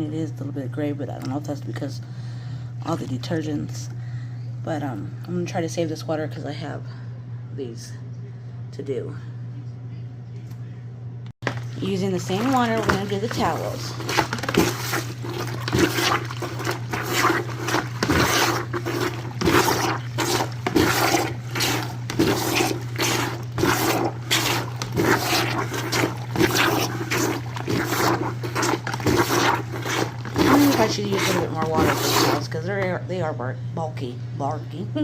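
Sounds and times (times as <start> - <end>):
hand plunger pumping: 11.4 - 32.6
soapy water sloshing: 11.4 - 32.8.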